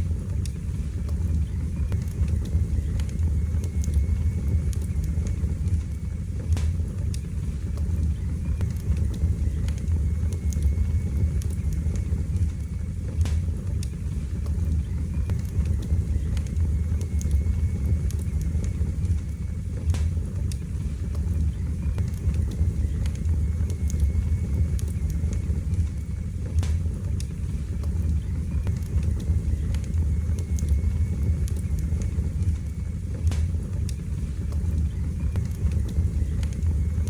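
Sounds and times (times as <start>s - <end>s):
fire crackling and popping: 0.0s - 37.0s
fire roaring in a fireplace: 0.0s - 37.0s.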